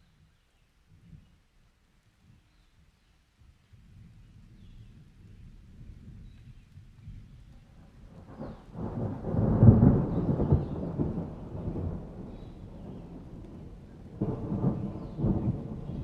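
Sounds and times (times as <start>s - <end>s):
rainstorm: 0.3s - 16.0s
thunder rumbling: 7.8s - 16.0s.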